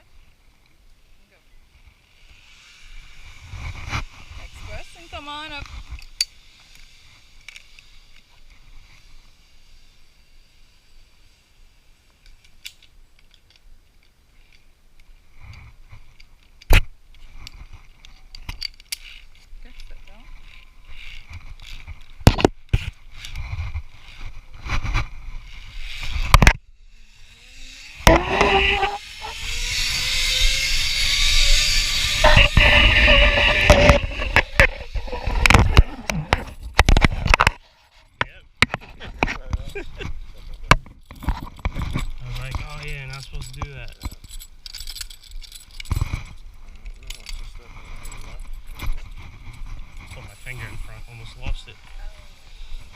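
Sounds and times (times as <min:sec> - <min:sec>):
zip line pulleys whining: 0:01.9 - 0:05.4, 0:25.3 - 0:36.6, 0:47.1 - 0:52.9
wind on microphone: 0:28.0 - 0:37.4.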